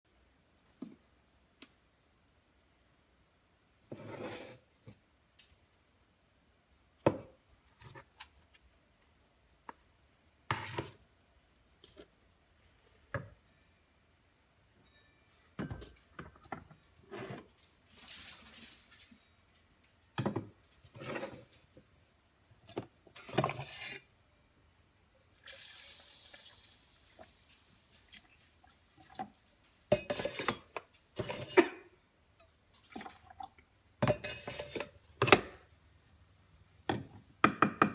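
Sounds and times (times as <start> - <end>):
dishes and cutlery clinking: 27.9 - 31.8, 34.0 - 35.5.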